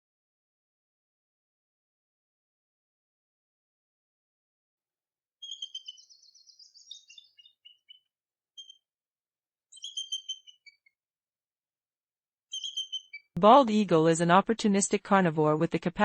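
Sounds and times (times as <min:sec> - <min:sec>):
eagle chittering call: 0:05.4 - 0:08.0, 0:09.8 - 0:10.9, 0:12.5 - 0:13.3.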